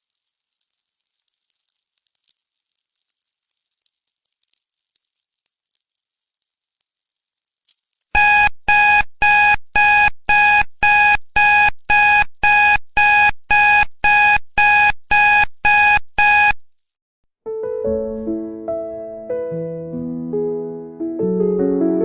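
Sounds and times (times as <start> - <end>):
alarm timer beeping: 8.2 - 16.6
soft piano music: 17.5 - 22.0.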